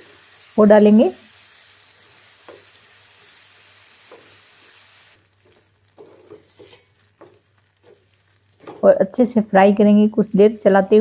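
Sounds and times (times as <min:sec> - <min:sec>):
paste sizzling in hot oil: 0:00.0 - 0:09.2
spatula scraping a pan: 0:04.0 - 0:08.9.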